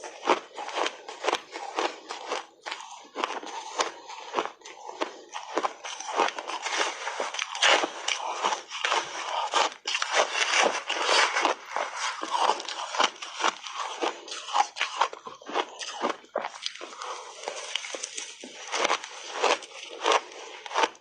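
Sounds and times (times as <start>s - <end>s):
person chewing crunchy ice: 0.0s - 21.0s.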